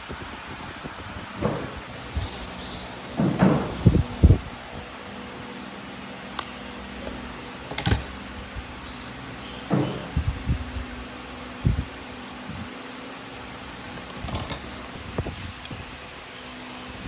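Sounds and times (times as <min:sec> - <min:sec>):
steady low hum: 0:00.0 - 0:17.0
tools knocking and clinking: 0:01.4 - 0:03.8, 0:06.2 - 0:08.3, 0:13.9 - 0:14.8.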